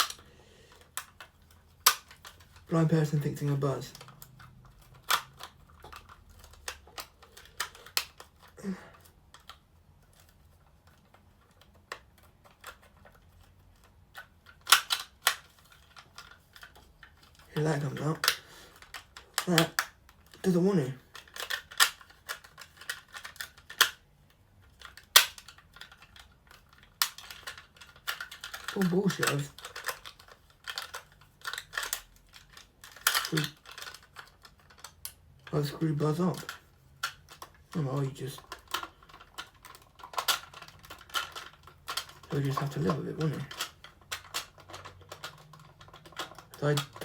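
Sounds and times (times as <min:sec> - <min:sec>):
handling rustle: 0:00.0 - 0:47.0
plastic toy parts clicking: 0:00.0 - 0:47.0.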